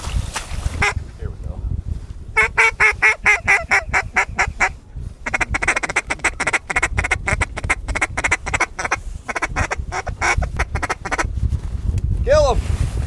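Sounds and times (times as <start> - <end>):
duck call quacks: 0.8 - 1.0, 2.4 - 11.3.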